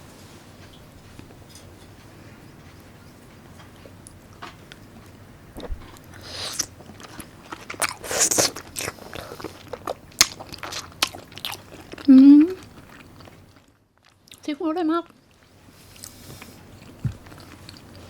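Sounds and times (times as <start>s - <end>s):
person chewing food: 3.5s - 14.4s, 15.1s - 18.0s.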